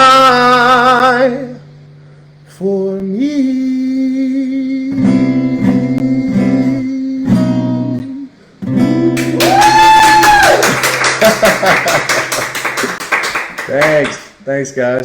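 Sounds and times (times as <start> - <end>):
acoustic guitar strumming: 4.8 - 9.9.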